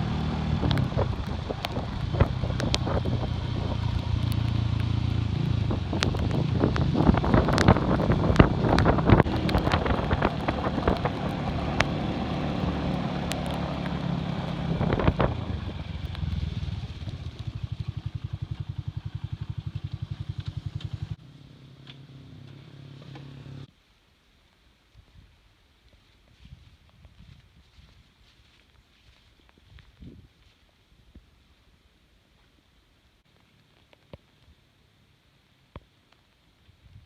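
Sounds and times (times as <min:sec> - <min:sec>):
motorcycle engine: 0:00.0 - 0:23.7
wind and road noise: 0:00.0 - 0:23.7, 0:24.9 - 0:34.8.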